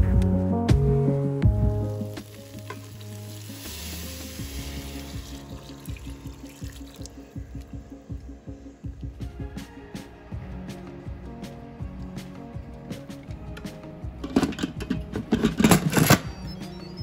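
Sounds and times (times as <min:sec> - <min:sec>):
background music: 0:00.0 - 0:17.0
food sizzling in pot: 0:02.0 - 0:07.3
water poured into hot pot: 0:02.0 - 0:07.8.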